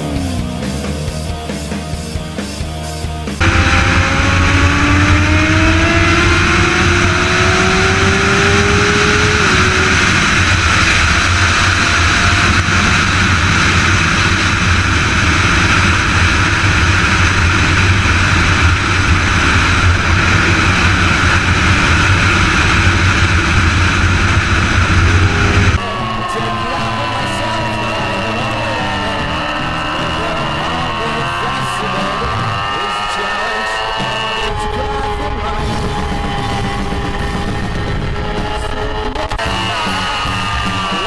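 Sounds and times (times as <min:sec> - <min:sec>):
motorcycle engine accelerating: 0:00.0 - 0:41.0
wind noise on microphone: 0:03.4 - 0:25.8, 0:34.2 - 0:40.9.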